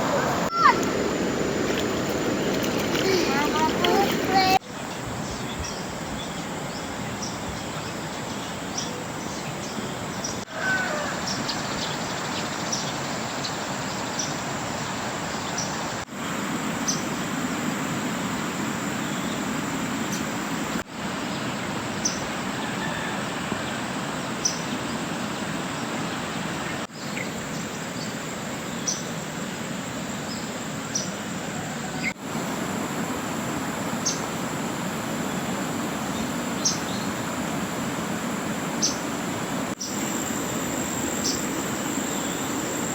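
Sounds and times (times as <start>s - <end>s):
rushing water: 0.0s - 4.6s, 32.1s - 42.9s.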